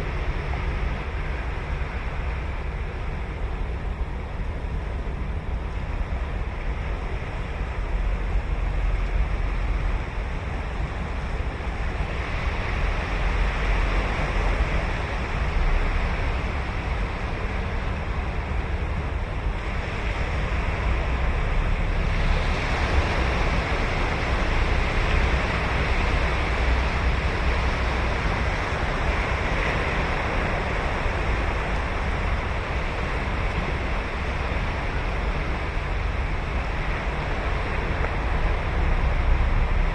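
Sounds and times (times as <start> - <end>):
ocean waves breaking on beach: 0.0 - 39.9
wind rumble on microphone: 0.0 - 39.9.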